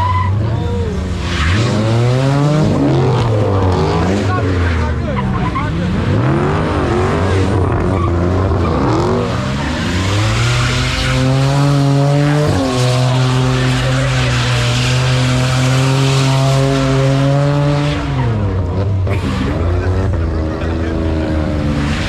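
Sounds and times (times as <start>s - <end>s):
tyres screeching on pavement: 0.0s - 17.0s
car engine revving: 0.0s - 22.0s.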